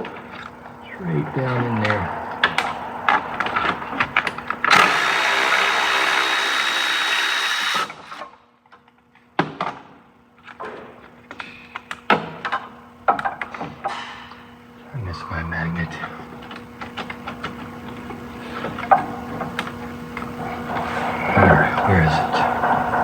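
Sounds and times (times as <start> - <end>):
power tool running: 1.8 - 8.4.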